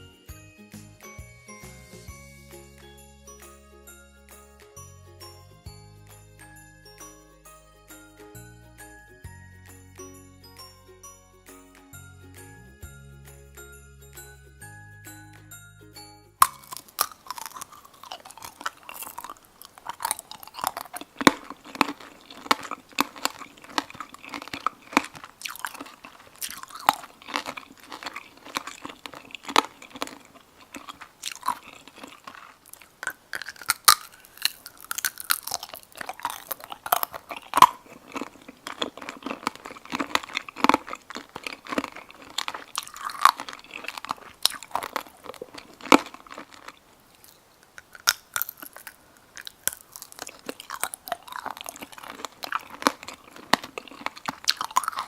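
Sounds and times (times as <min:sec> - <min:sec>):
crunching candied fruit: 0:16.4 - 0:55.0
sugar shell cracking: 0:16.4 - 0:55.0.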